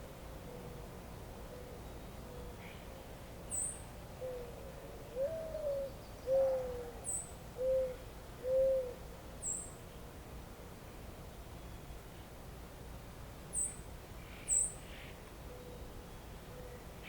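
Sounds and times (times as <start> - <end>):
faint steady hiss: 0.0 - 17.0
bird hooting softly: 1.4 - 9.7, 13.6 - 17.0.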